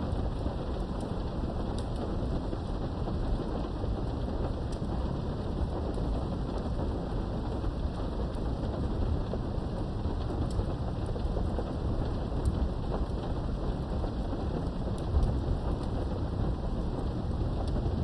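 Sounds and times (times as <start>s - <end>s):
low rumble of thunder: 0.0s - 18.0s
steady rain behind a window: 0.0s - 18.0s.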